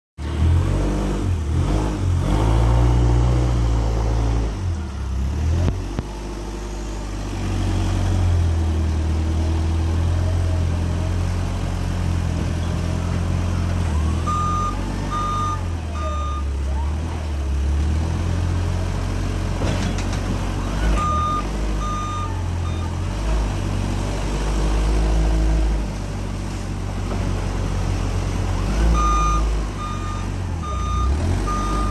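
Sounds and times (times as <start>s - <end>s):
truck engine running: 0.3s - 31.9s
reversing alarm beeping: 14.1s - 16.5s, 28.9s - 31.9s.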